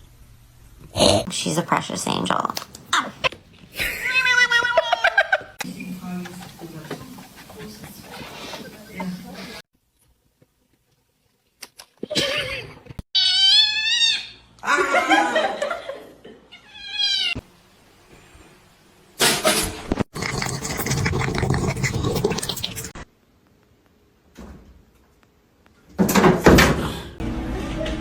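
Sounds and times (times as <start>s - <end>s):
cat meowing and yowling: 13.2s - 14.4s.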